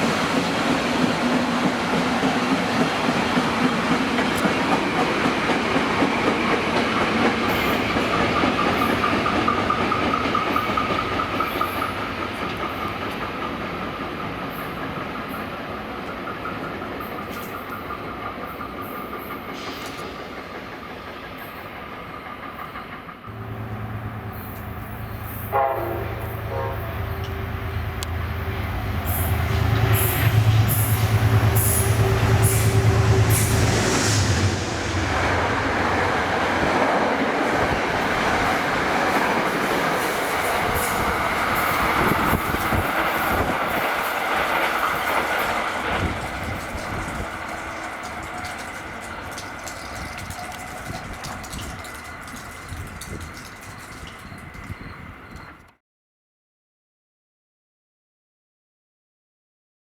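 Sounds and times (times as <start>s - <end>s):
rail clicks: 0.0s - 55.7s
train engine drone: 0.0s - 55.7s
train passing on rails: 0.0s - 55.8s
train horn blast: 23.3s - 35.5s.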